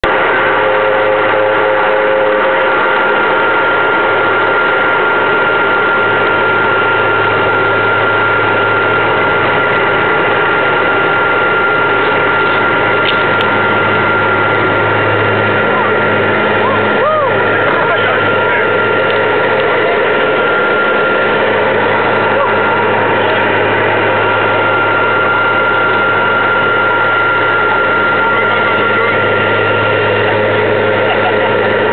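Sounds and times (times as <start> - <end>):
high whine: 0.0 - 31.9
turboprop engines droning: 0.0 - 31.9.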